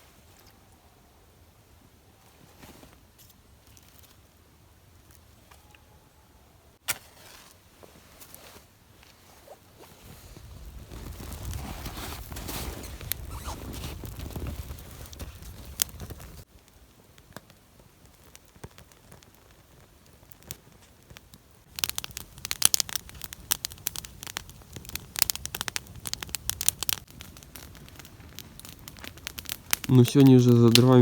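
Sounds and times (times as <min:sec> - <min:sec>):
low rustling noise: 0:07.0 - 0:23.6
campfire crackling and popping: 0:10.3 - 0:31.0.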